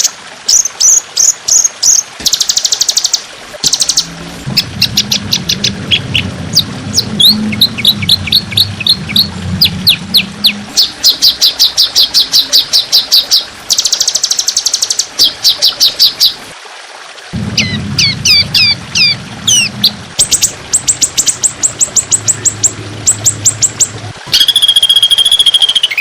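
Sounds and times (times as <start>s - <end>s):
low hum: 3.4s - 12.8s, 17.3s - 24.5s
fast buzzy bird trill: 17.6s - 26.0s
songbird whistled notes: 24.3s - 26.0s.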